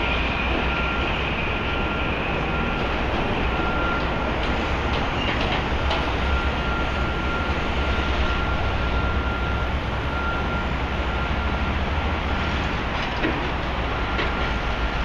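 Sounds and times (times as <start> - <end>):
steady high whine: 0.0 - 12.0.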